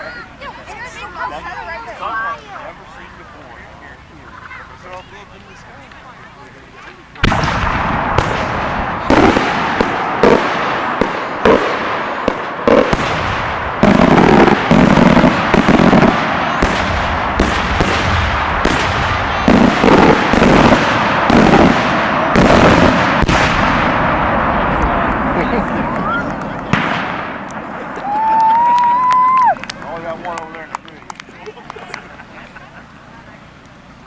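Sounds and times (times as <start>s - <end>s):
firework shells bursting: 7.2s - 29.8s.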